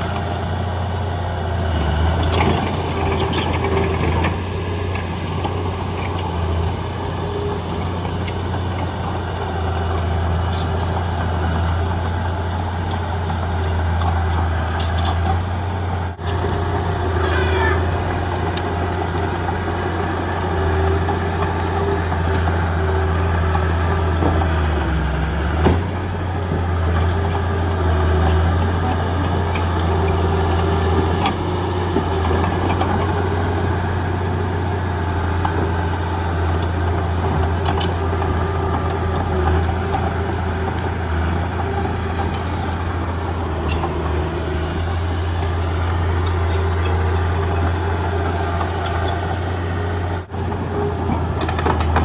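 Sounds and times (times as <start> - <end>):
heavy diesel engine running: 0.0 - 52.0
high-pitched metal squeals: 17.1 - 18.1.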